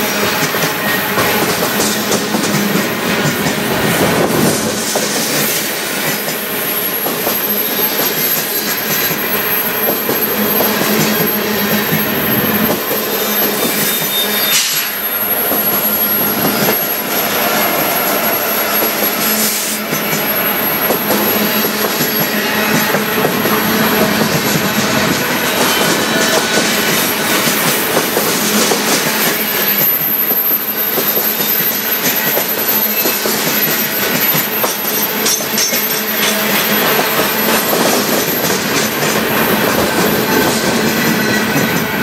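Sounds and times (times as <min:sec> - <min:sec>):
train wheels clattering on rails: 0:00.0 - 0:42.0
high wheel squeal: 0:06.6 - 0:24.3.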